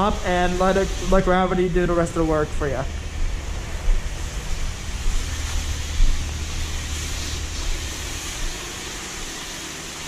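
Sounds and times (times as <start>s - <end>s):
low rumble: 0.0s - 9.2s
water spray hissing on car: 0.0s - 10.0s.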